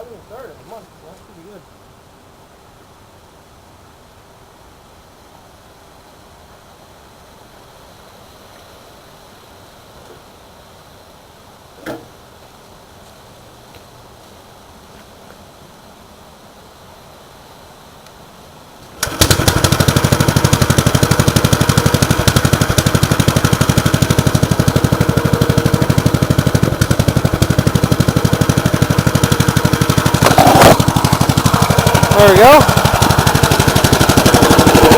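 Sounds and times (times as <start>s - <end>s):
small tractor engine starting and running: 18.9s - 34.9s.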